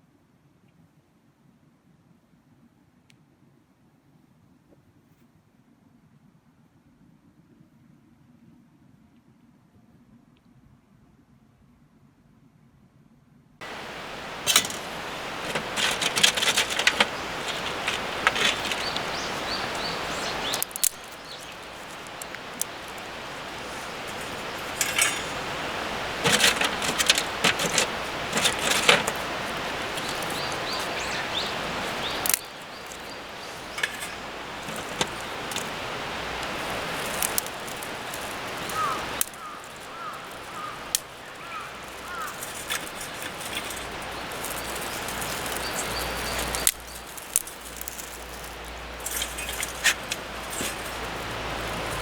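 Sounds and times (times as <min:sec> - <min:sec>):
clatter of things handled: 0:13.6 - 0:52.0
steady rushing hiss: 0:13.6 - 0:52.0
bird chirps: 0:15.0 - 0:26.2, 0:27.3 - 0:35.9, 0:36.5 - 0:47.8.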